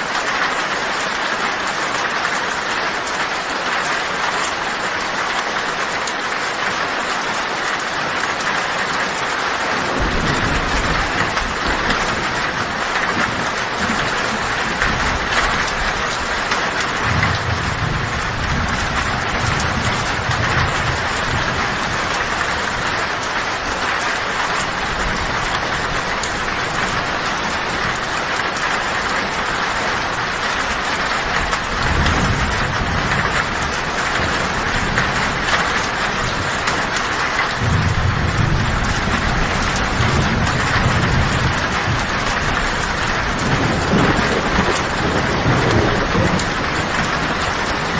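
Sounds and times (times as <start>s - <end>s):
heavy rain on a tin roof: 0.0s - 47.9s
low thunder rumbling: 9.7s - 47.9s.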